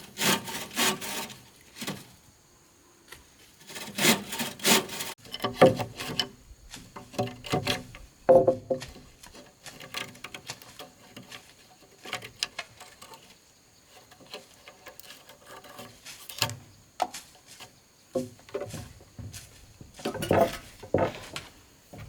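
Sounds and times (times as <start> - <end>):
bamboo and wood knocks: 5.4 - 9.4, 18.1 - 22.0.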